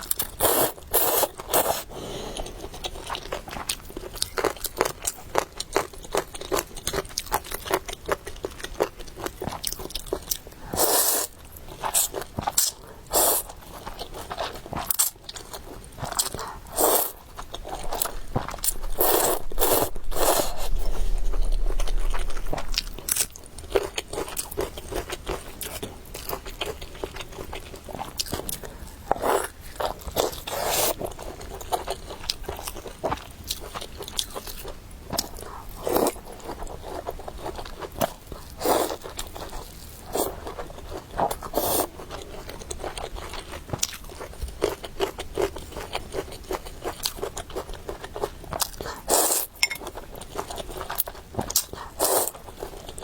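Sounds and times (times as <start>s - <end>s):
person biting and chewing food: 14.1s - 26.4s.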